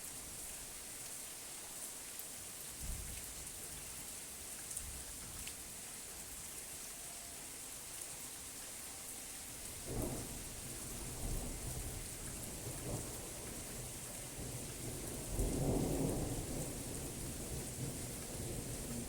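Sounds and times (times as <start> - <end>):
steady rain: 0.0 - 19.0
rolling thunder: 13.8 - 19.0.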